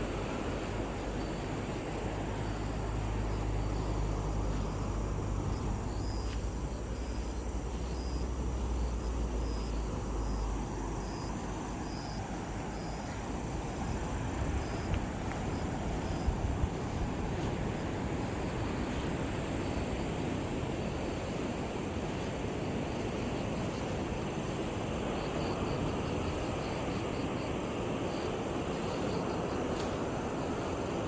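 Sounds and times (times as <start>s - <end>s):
low engine drone: 0.0s - 31.0s
sea surf: 0.0s - 31.0s
wind noise: 8.4s - 31.0s.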